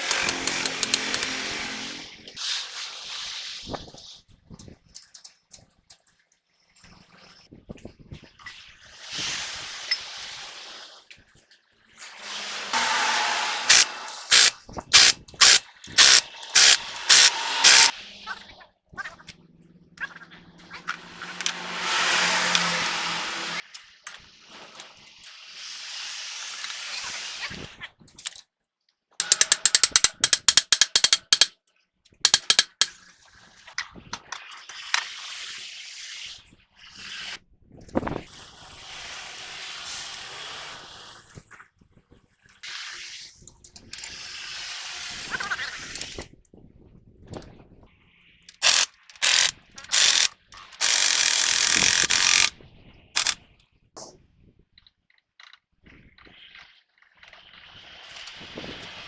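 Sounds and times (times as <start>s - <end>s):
ratchet wrench clicking: 0.0s - 1.4s, 13.6s - 17.9s, 21.4s - 23.4s, 29.2s - 31.5s, 32.2s - 33.0s, 48.5s - 52.5s, 53.2s - 53.4s.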